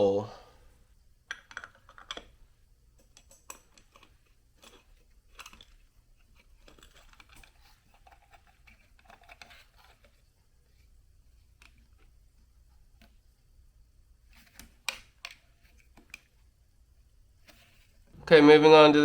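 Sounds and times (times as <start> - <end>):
small metal parts clicking: 1.3 - 2.4, 3.0 - 5.9, 6.6 - 10.0.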